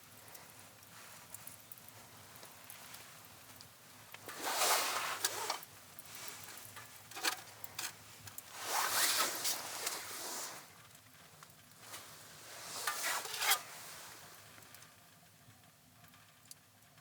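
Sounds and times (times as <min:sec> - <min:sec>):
zipper pulled: 0:04.4 - 0:05.6, 0:08.5 - 0:10.6, 0:12.6 - 0:13.9.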